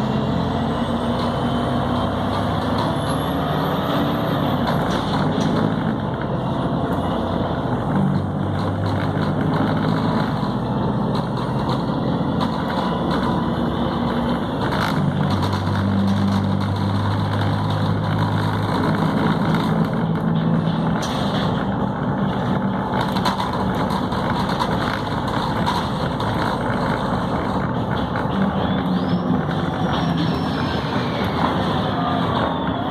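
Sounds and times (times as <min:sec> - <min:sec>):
bus diesel engine running: 0:00.0 - 0:32.9.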